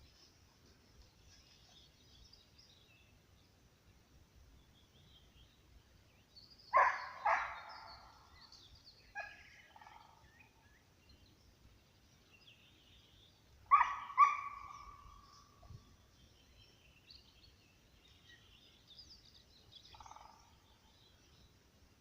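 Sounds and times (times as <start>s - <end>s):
faint birdsong: 0.0s - 22.0s
hound baying and howling: 6.7s - 7.8s, 13.7s - 15.1s
dog yelp: 13.7s - 14.8s.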